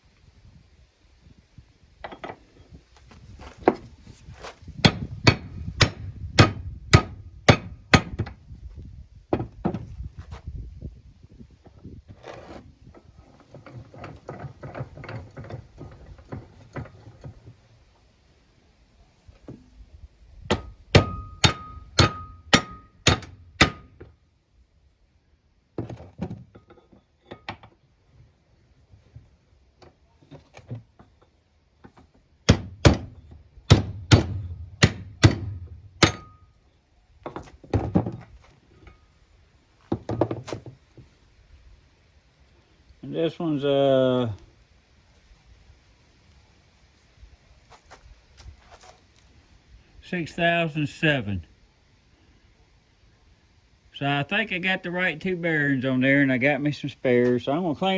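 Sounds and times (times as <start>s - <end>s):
hard knocks on metal: 4.8s - 8.4s, 20.5s - 24.0s, 32.4s - 36.4s.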